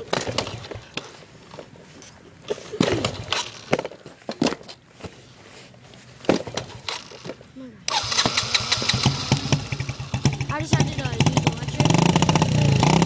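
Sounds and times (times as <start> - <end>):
kickstart lever clanking: 7.9 - 10.4.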